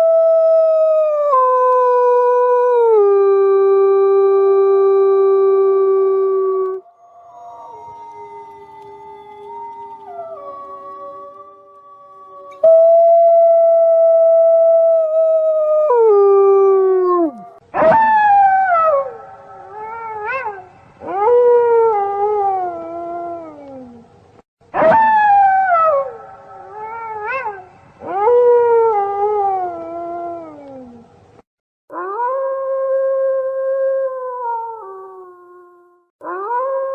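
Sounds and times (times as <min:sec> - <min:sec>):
wolves howling: 0:05.6 - 0:24.0.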